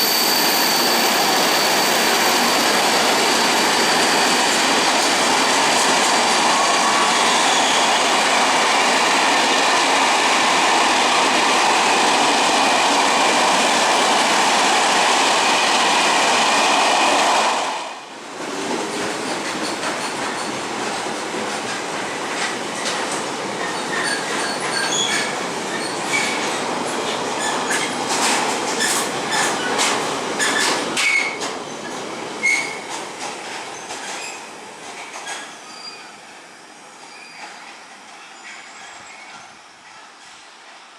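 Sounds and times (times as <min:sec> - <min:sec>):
high wheel squeaks: 0:00.0 - 0:05.1
train passing close by: 0:00.0 - 0:40.9
train rolling over rail joints: 0:00.2 - 0:36.0.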